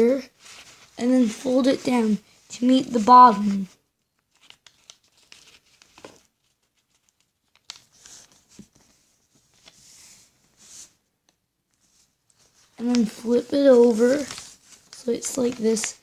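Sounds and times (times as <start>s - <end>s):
paper rustling and crinkling: 0.4s - 10.9s, 11.7s - 16.0s.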